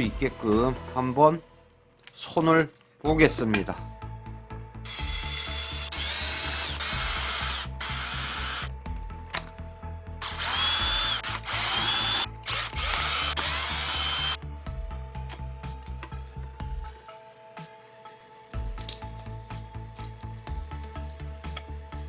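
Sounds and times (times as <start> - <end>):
cordless drill motor whine: 4.8 - 8.7, 10.2 - 14.4.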